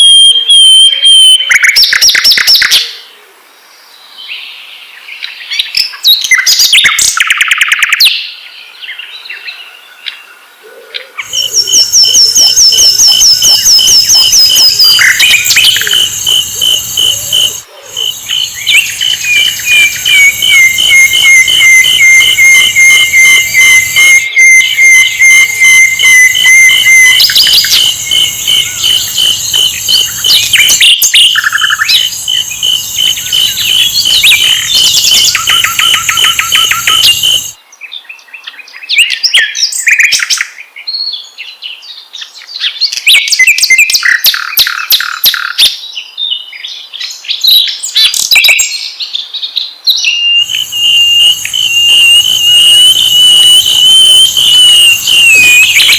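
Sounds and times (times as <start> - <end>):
flycatcher song trills and chirps: 11.3 - 37.6, 50.2 - 55.9.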